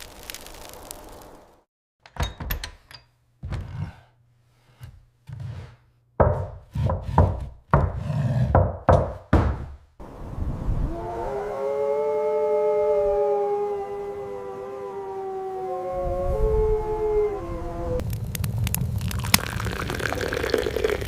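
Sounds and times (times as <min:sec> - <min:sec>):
wooden knocks and thuds: 0:03.4 - 0:04.1, 0:06.2 - 0:09.9
wolves howling: 0:10.9 - 0:18.0.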